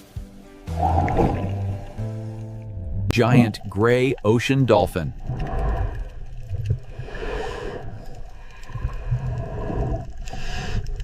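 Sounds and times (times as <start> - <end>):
low rumble: 0.8 - 4.2.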